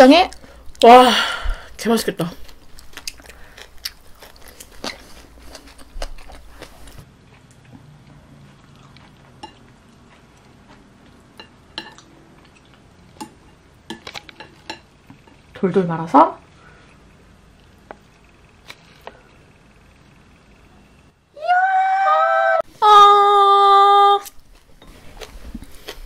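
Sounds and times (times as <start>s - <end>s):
chewing and crunching: 2.3s - 14.6s, 24.2s - 26.0s.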